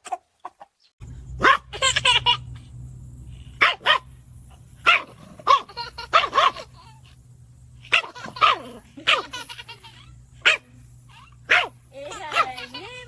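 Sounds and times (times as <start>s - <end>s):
dog barking: 1.4s - 1.7s, 3.6s - 4.1s, 4.8s - 6.7s, 7.9s - 9.4s, 10.4s - 12.7s.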